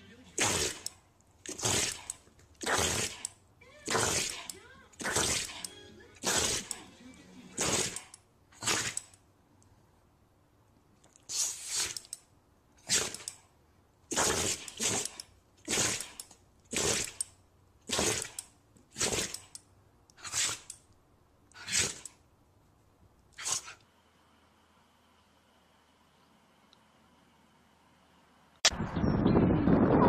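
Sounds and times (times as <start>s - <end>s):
animal sneezing: 3.9s - 6.7s, 7.6s - 9.0s, 11.3s - 12.0s, 14.1s - 17.2s, 20.2s - 20.7s, 21.6s - 22.0s, 23.4s - 23.8s.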